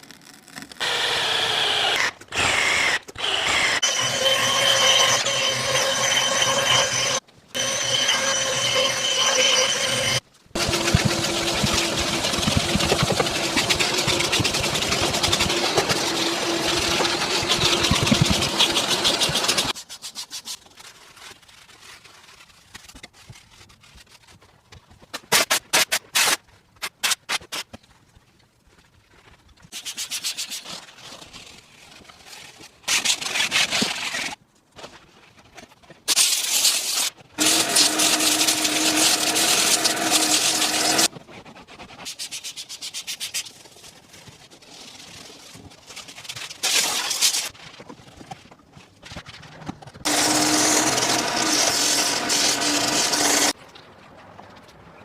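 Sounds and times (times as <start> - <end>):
electric tool motor whining: 0.8 - 19.7, 50.1 - 53.5
rubbing and scrubbing: 8.3 - 24.4, 29.7 - 35.2, 36.2 - 53.6.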